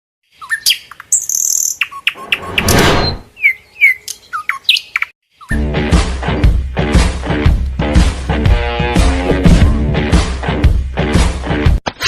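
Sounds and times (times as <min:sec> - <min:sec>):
birds chirping: 0:00.3 - 0:05.7
music with steady beat: 0:05.6 - 0:11.8.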